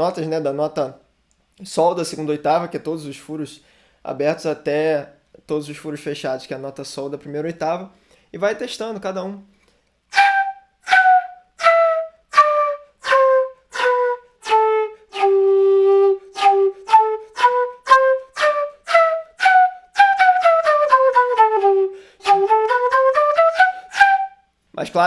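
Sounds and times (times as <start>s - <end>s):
flute playing scale: 10.1s - 24.5s.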